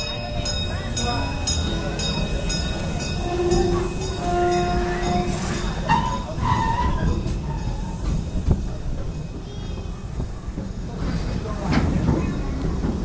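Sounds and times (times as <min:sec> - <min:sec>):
train wheels squealing: 0:00.0 - 0:10.2
train wheels rumbling on track: 0:00.0 - 0:13.0.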